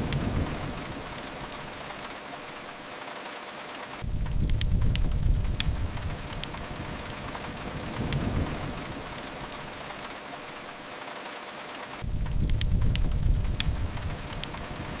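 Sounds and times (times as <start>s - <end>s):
fireplace crackles: 0.0s - 15.0s
rain hissing: 0.0s - 15.0s
deep rumble: 4.0s - 9.6s, 12.0s - 15.0s.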